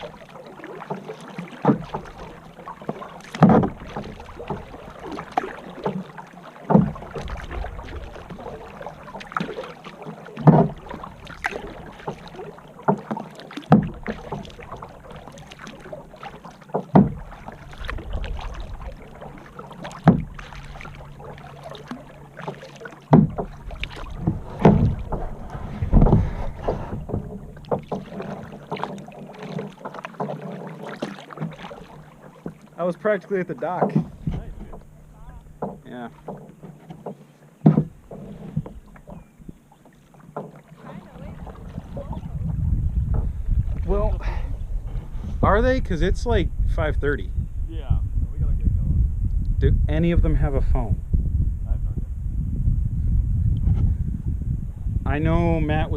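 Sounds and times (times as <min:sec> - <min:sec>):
water washing: 0:00.0 - 0:46.3
kayak paddle splashing: 0:00.0 - 0:46.7
wind buffeting microphone: 0:06.8 - 0:09.7, 0:16.9 - 0:28.8, 0:33.6 - 0:36.4, 0:40.8 - 0:55.9.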